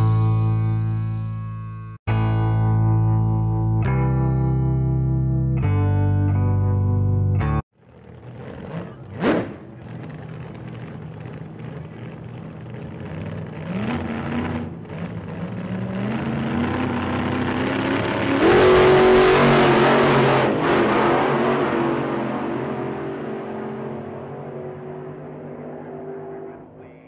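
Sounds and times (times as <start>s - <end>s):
go-karts accelerating: 7.8s - 27.0s.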